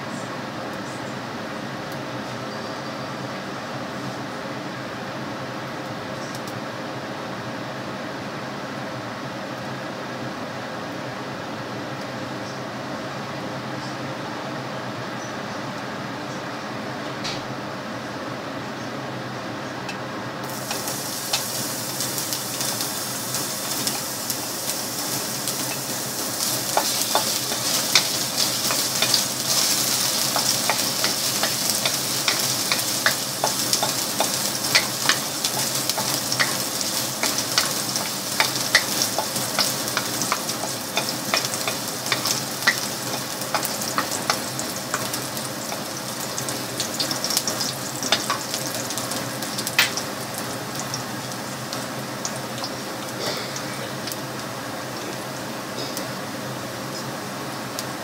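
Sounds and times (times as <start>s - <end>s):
garlic sizzling in hot oil: 20.4s - 58.0s.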